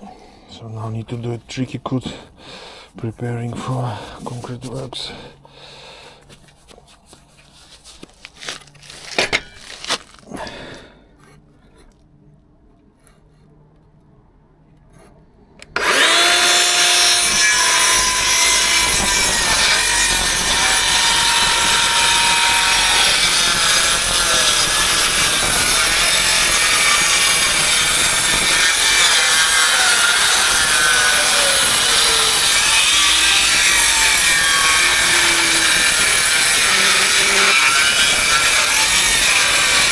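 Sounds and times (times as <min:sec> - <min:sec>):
circular saw cutting timber: 0:03.0 - 0:05.2, 0:15.0 - 0:39.9.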